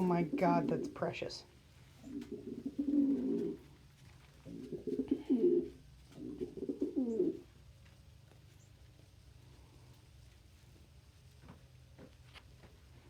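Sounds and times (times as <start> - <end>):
pigeon cooing: 2.0 - 3.8, 4.4 - 7.5.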